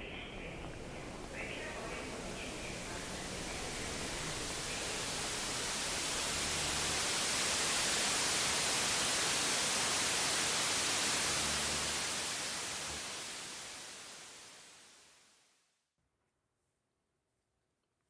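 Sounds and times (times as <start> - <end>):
static-like hiss: 0.0 - 15.8.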